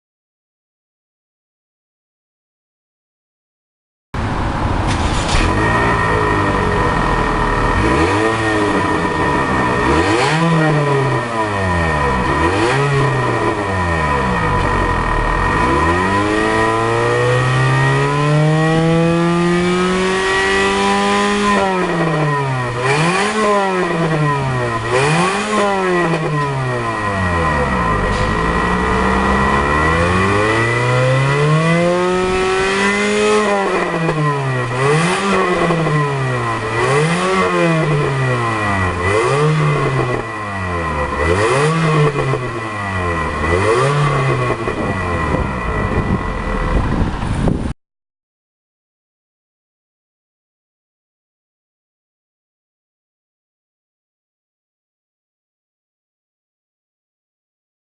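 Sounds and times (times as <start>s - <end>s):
car engine idling and revving: 4.2s - 47.7s.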